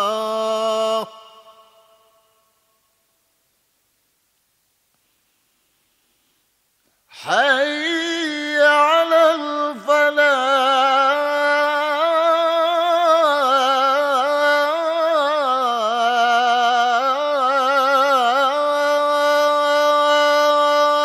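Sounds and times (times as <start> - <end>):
man chanting call to prayer: 0.0 - 2.2, 7.2 - 21.0.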